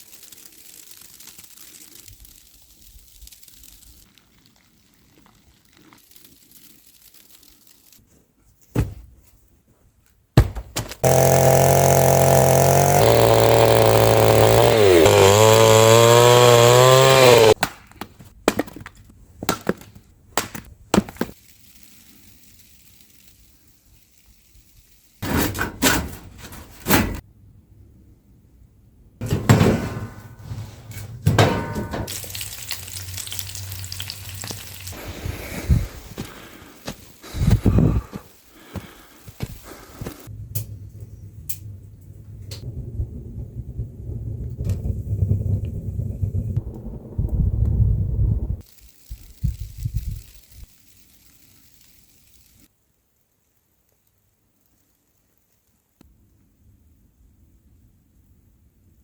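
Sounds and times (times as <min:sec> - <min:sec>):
wood knocking and cracking: 0:10.4 - 0:11.6, 0:17.4 - 0:21.3
chainsaw cutting wood: 0:10.9 - 0:17.8.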